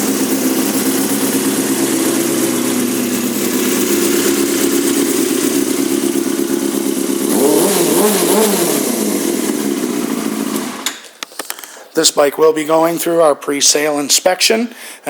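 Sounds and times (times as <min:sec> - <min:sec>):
motorcycle engine idling: 0:00.0 - 0:10.8
engine throttle blips: 0:00.0 - 0:11.0.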